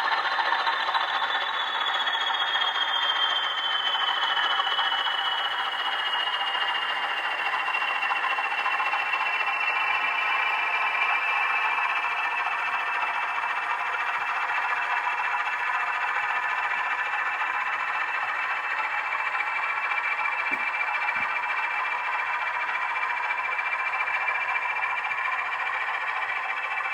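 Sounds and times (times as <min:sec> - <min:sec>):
model locomotive whirring: 0:00.0 - 0:26.9.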